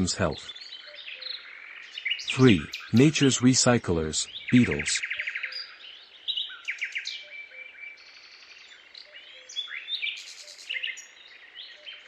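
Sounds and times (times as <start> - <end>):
faint steady background noise: 0.0 - 6.5
birds chirping and whistling: 0.3 - 3.4, 4.2 - 12.0.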